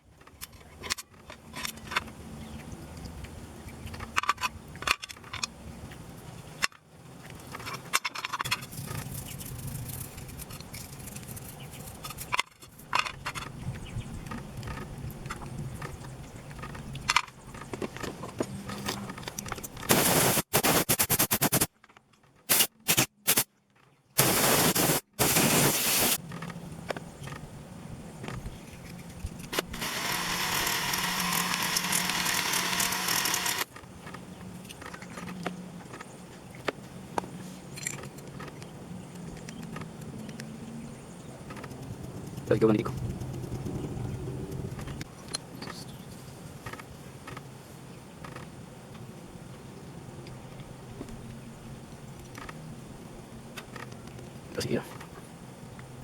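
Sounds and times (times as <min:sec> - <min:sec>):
bursts of hissing air: 0:19.9 - 0:21.7, 0:22.5 - 0:23.5, 0:24.2 - 0:26.2.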